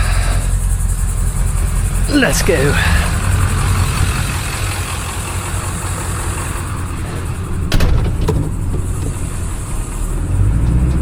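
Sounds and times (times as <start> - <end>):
vehicle engine driving off: 0.0 - 11.0
rattles or knocks: 7.7 - 9.2.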